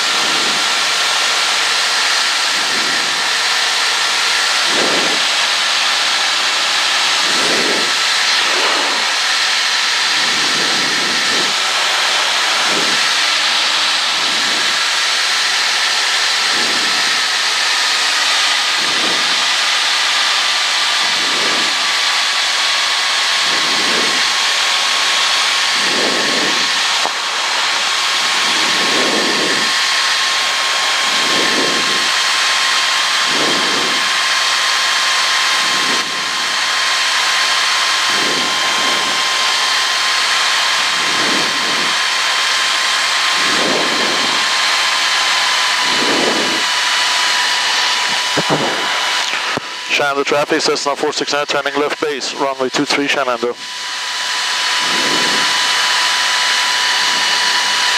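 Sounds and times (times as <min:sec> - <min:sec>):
aircraft engine and propeller: 0:00.0 - 0:57.9
soft low pulses: 0:02.4 - 0:19.5, 0:45.7 - 0:51.8
airflow hiss: 0:07.0 - 0:14.8.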